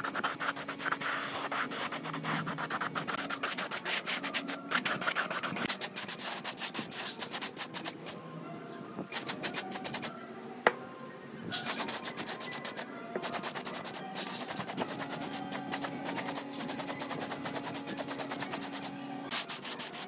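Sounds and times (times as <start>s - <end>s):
hand sanding strokes: 11.6s - 20.0s.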